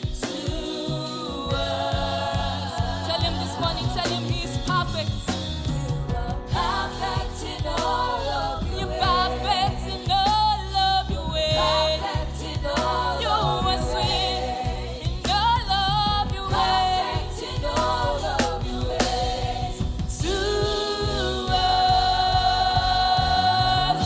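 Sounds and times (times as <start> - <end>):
band with steady bass: 0.0 - 24.0
singers holding long notes: 16.5 - 24.0.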